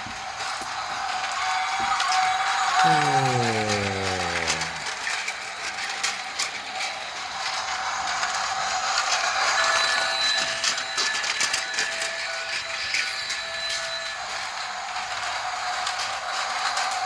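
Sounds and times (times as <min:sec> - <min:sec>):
toy train motor whirring: 0:00.2 - 0:17.0
toy train clicks: 0:00.4 - 0:17.0.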